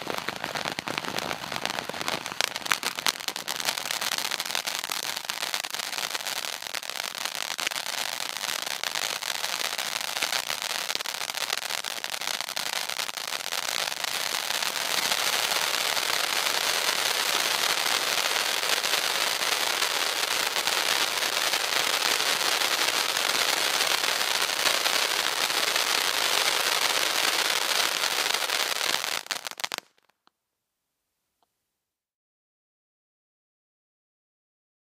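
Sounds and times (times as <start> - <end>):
firework rapid pops and crackles: 0.0 - 30.3.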